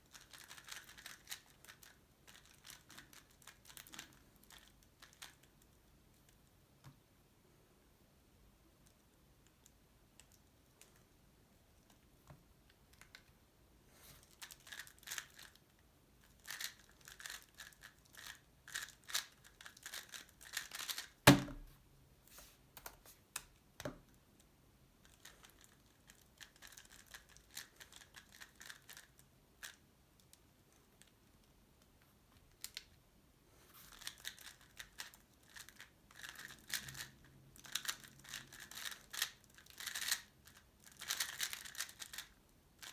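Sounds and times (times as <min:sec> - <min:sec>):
sharp knock: 0:21.3 - 0:21.7.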